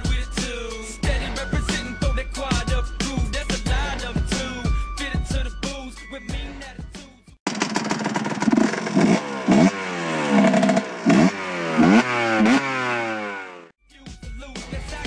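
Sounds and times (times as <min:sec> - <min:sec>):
music: 0:00.0 - 0:07.4, 0:13.8 - 0:15.0
two-stroke engine revving: 0:07.5 - 0:13.8.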